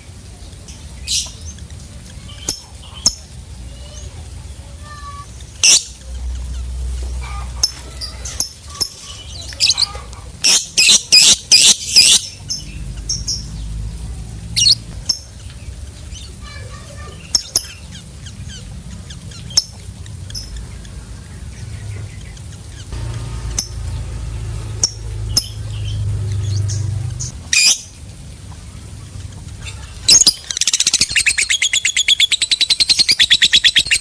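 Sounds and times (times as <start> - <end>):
shrill lovebird calls: 4.9 - 13.5, 14.6 - 15.2, 24.8 - 27.9, 29.6 - 34.0
lovebird chirps: 5.0 - 13.8, 14.5 - 28.0, 29.6 - 34.0.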